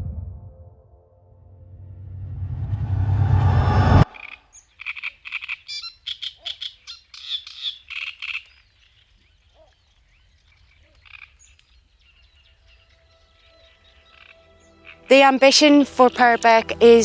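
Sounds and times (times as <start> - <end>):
frog croaking: 4.1 - 8.5, 10.7 - 11.6, 14.1 - 15.1
faint bird chirps: 4.1 - 14.4.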